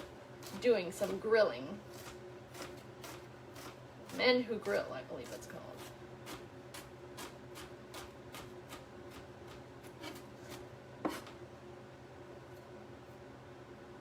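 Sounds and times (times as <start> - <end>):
knife chopping on cutting board: 1.9 - 11.4.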